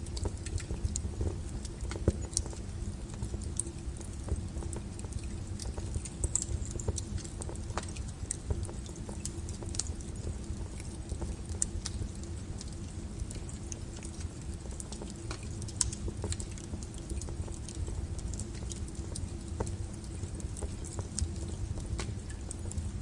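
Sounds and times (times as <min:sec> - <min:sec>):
burning logs crackling and popping: 0:00.0 - 0:23.0
wood fire flames rumbling: 0:00.0 - 0:23.0.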